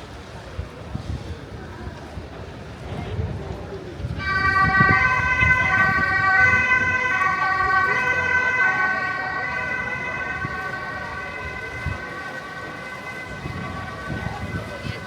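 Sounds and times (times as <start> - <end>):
emergency vehicle siren: 4.0 - 15.0.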